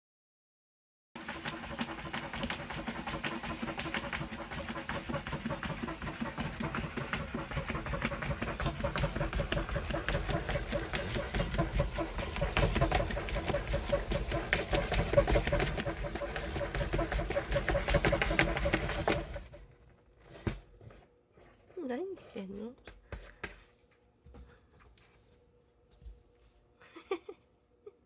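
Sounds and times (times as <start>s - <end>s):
cat scratching cardboard box: 1.2s - 19.6s.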